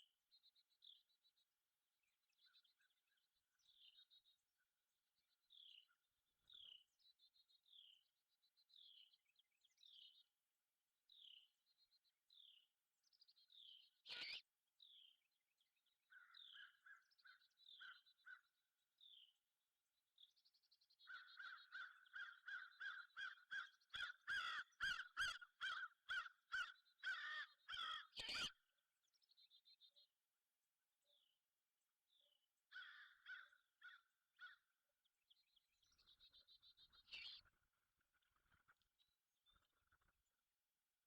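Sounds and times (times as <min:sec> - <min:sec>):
crows cawing: 0:21.1 - 0:28.2, 0:32.7 - 0:34.6.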